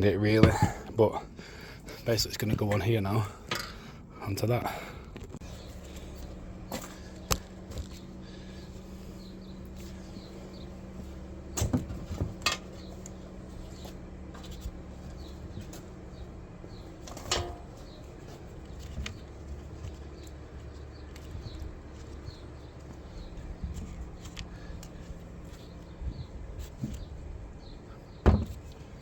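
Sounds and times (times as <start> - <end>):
steady low hum: 0.0 - 29.0
metal clanks of bracket fitting: 3.5 - 3.8, 12.3 - 12.8, 17.0 - 17.9.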